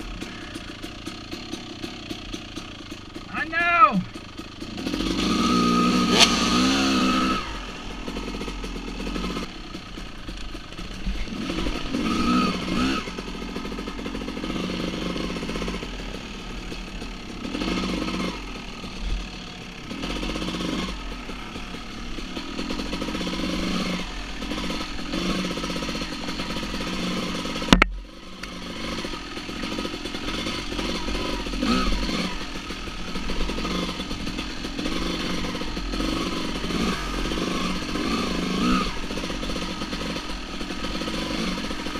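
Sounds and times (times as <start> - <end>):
dirt bike engines revving: 0.0 - 41.9
sharp crack: 6.1 - 7.1.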